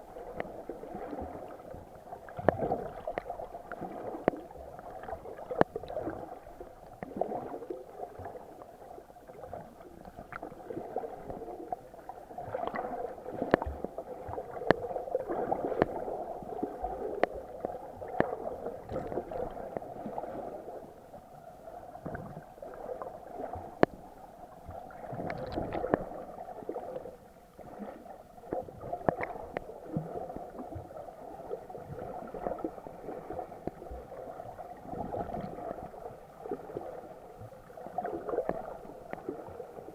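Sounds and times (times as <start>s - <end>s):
underwater water gurgling: 0.0s - 39.9s.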